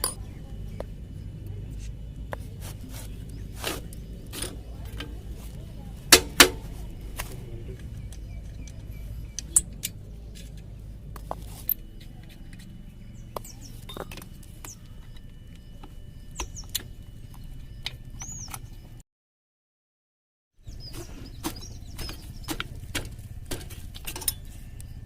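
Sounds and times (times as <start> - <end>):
metal tools clinking and knocking: 0.0 - 0.4, 22.0 - 24.8
steady low hum: 0.0 - 19.0, 20.6 - 25.0.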